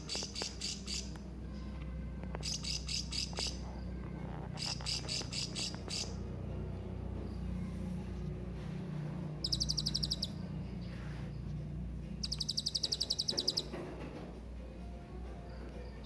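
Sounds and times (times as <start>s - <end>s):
steady low hum: 0.0s - 16.0s
parrot high thin chirps: 9.4s - 10.4s, 12.2s - 13.8s.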